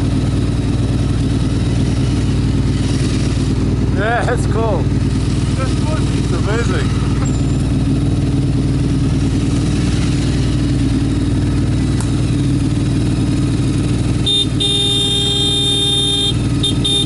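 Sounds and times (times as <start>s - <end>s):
motorcycle engine running: 0.0s - 17.0s
horn sounding: 14.1s - 17.0s.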